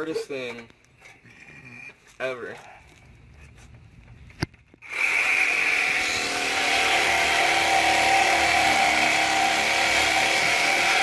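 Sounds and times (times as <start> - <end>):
power saw cutting metal pipe: 4.8 - 11.0.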